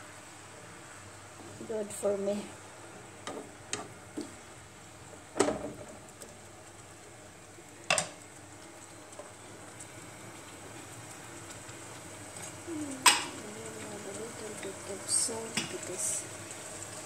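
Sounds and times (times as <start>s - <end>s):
fish sizzling in a frying pan: 3.4s - 17.0s.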